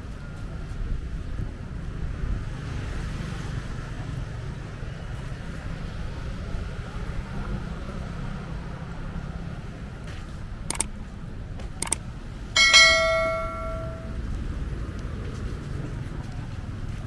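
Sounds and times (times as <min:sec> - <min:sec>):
bell ringing: 0:12.6 - 0:14.2.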